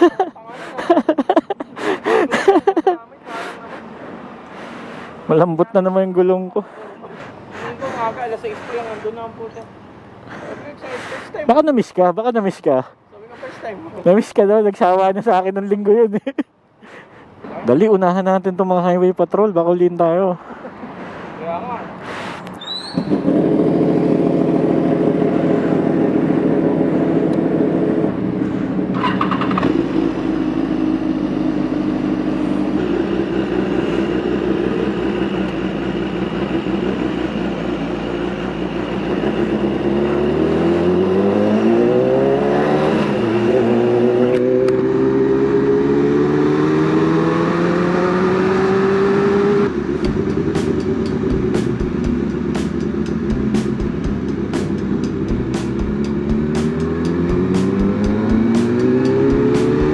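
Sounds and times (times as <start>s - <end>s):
motorcycle engine accelerating: 23.0s - 59.9s.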